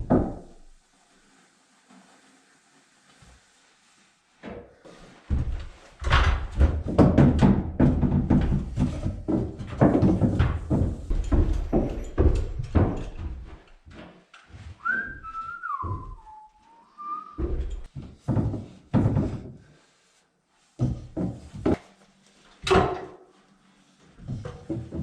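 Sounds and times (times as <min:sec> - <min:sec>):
irregular thuds and knocks: 0:00.0 - 0:00.6, 0:05.2 - 0:14.2, 0:15.2 - 0:16.4, 0:17.3 - 0:19.7, 0:20.8 - 0:21.8, 0:24.2 - 0:25.0
person whistling: 0:14.8 - 0:17.4.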